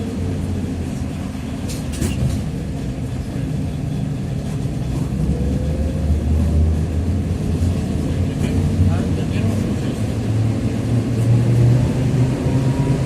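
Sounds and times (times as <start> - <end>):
trolleybus rumble: 0.0 - 13.0.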